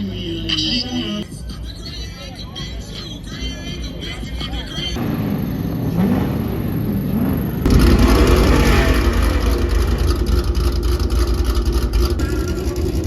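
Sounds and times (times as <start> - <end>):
car engine revving and rumbling: 3.7 - 13.0.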